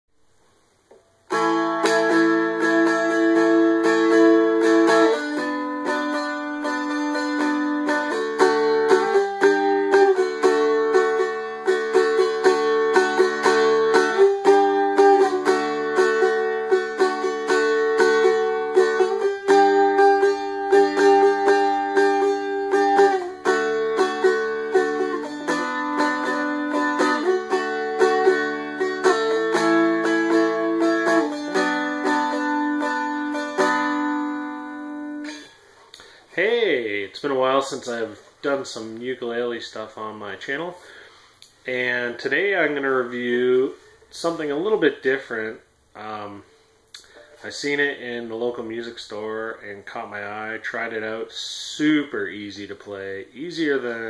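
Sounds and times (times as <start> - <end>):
dulcimer strummed chords: 1.3 - 36.2.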